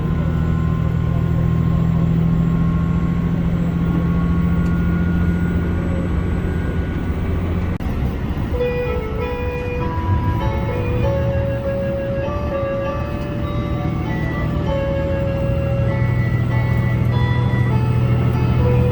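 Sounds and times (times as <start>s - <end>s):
diesel engine humming: 0.0s - 18.9s
steady musical tones: 5.1s - 18.9s.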